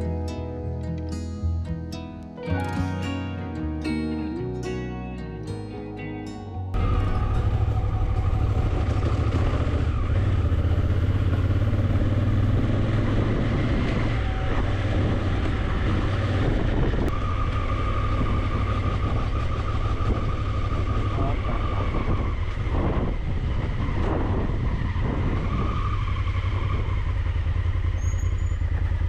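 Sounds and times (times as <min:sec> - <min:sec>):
road and wind noise: 0:06.7 - 0:29.0
motorcycle engine rumble: 0:06.8 - 0:29.0.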